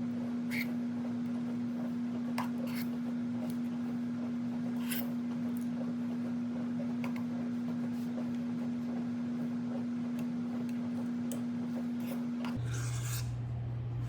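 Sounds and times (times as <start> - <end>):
spoon scraping cups: 2.2 - 3.6, 10.5 - 13.3.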